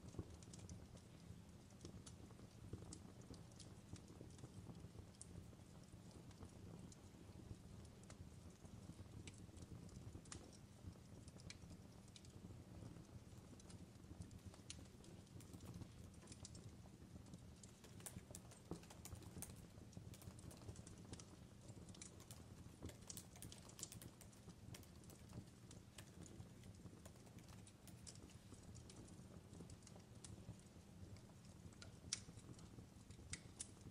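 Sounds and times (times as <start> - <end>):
fireplace crackling: 0.0 - 33.9.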